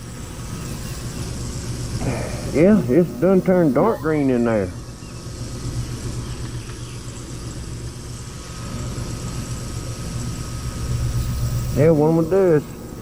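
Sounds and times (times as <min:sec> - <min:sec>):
ultrasonic cleaner hum: 0:00.0 - 0:13.0
thin high tone: 0:02.0 - 0:05.3.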